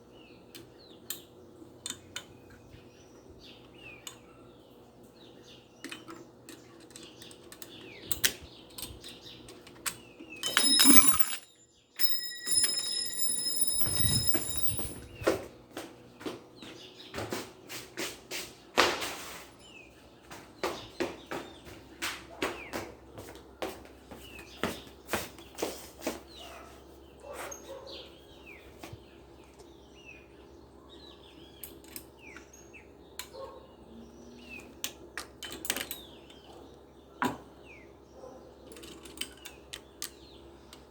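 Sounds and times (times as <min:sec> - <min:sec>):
metal parts clicking and knocking: 0:05.8 - 0:15.1.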